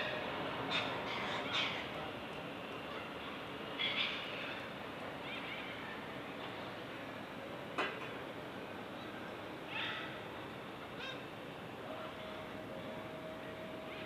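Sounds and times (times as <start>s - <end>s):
birds calling: 0.0s - 6.6s
steady background hiss: 0.0s - 14.0s.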